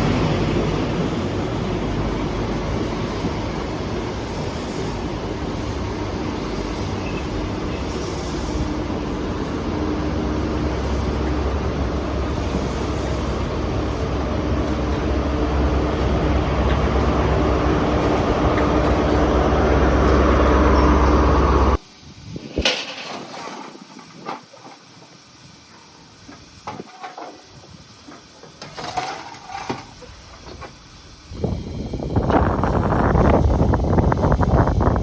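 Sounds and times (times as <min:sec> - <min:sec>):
diesel engines humming: 0:00.0 - 0:21.8
hiss: 0:00.0 - 0:35.0
train wheel and rail noise: 0:00.0 - 0:35.0.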